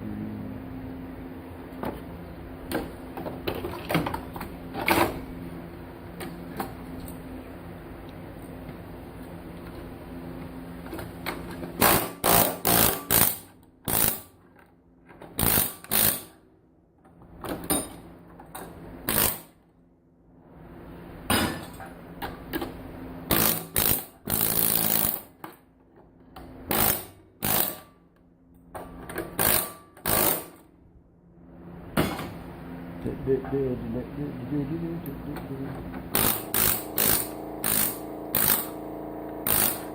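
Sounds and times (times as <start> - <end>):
air chisel bursts: 36.1 - 38.8, 39.4 - 39.9.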